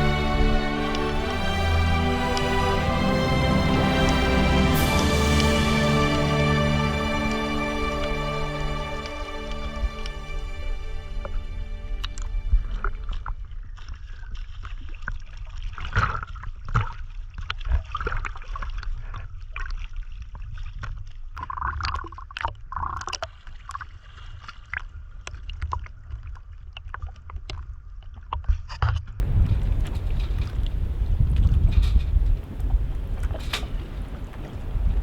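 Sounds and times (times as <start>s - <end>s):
water sloshing: 0.0s - 22.0s, 29.2s - 35.0s
wind rumble on microphone: 29.1s - 35.0s.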